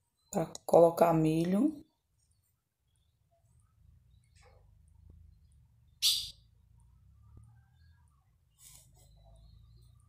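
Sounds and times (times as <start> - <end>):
faint bird chirps: 1.8 - 10.0.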